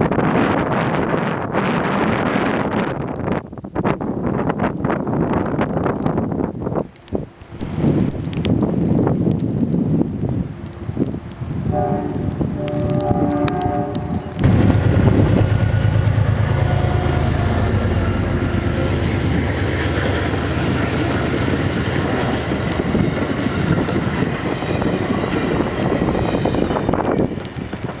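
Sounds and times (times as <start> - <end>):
train passing close by: 7.5 - 9.5, 10.2 - 28.0
train horn: 11.7 - 28.0
steady low hum: 14.4 - 23.2.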